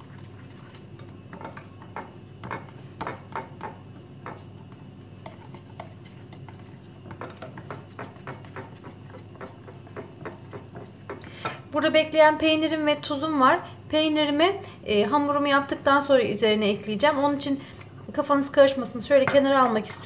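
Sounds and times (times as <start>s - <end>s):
whisk clicking against bowl: 5.2s - 11.2s.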